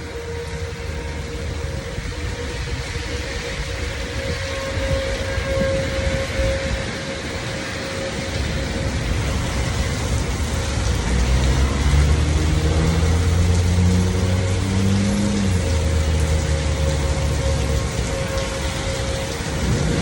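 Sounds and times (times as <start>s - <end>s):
heavy rain hissing: 0.0s - 20.0s
car engine accelerating: 10.6s - 18.0s.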